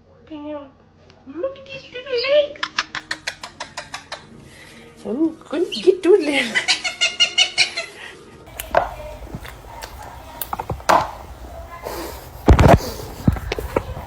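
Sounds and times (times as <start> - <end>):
knocks and taps: 10.4 - 11.4.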